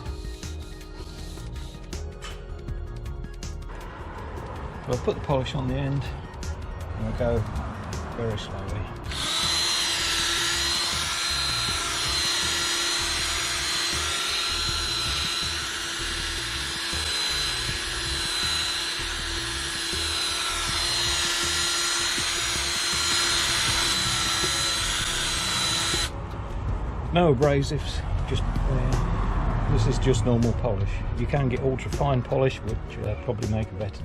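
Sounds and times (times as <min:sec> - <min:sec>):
electric drill polishing: 0:09.1 - 0:26.1.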